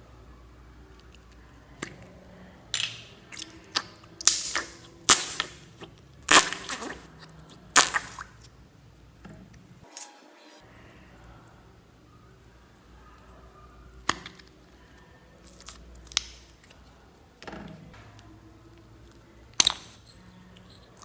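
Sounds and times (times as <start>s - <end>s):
slime popping and crackling: 2.8s - 8.6s, 15.4s - 16.8s, 19.0s - 20.1s.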